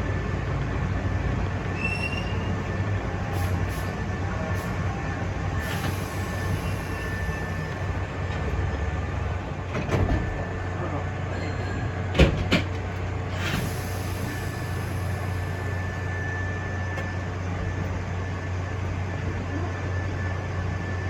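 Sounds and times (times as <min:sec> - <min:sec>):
train rumbling on rails: 0:00.0 - 0:21.0
high wheel squeal: 0:01.7 - 0:04.0, 0:05.6 - 0:08.0.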